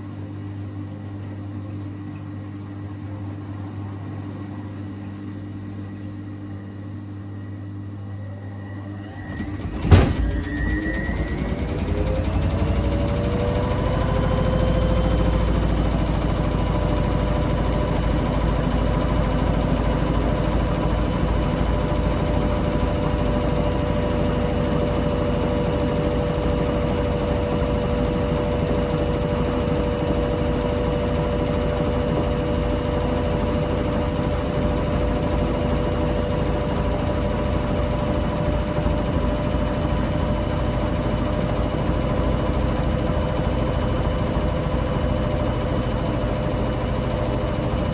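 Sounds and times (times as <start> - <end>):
high motor whine: 3.4 - 37.2
washing machine drum spinning: 8.5 - 47.9.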